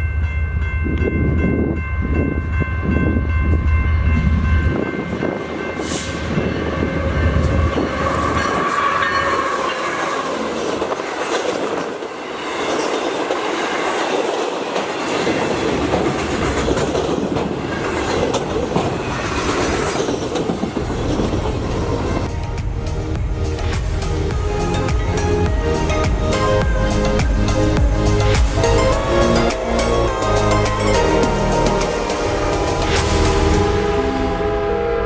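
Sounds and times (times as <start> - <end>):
deep locomotive rumble: 15.8 - 35.0.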